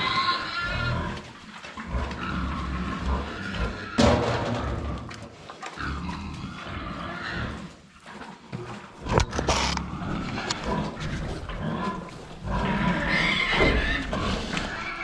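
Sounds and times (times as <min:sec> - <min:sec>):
farm animals calling: 0:00.0 - 0:05.1, 0:09.1 - 0:15.0.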